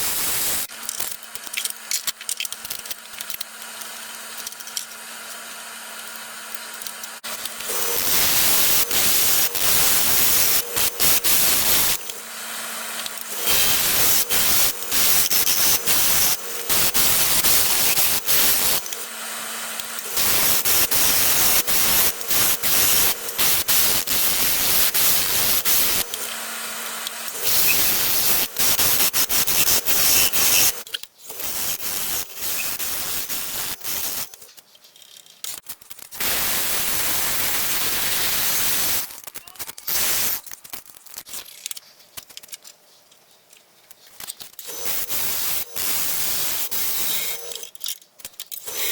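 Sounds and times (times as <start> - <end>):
tool scraping spinning wood: 0.7 - 34.4, 44.6 - 47.7, 48.6 - 48.9
lathe motor hum: 3.5 - 30.8, 44.7 - 47.6.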